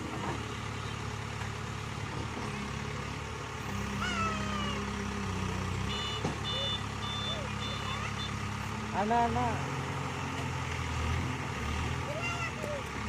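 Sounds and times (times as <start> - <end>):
diesel engine running: 0.0 - 13.0
reversing alarm beeping: 5.9 - 8.4.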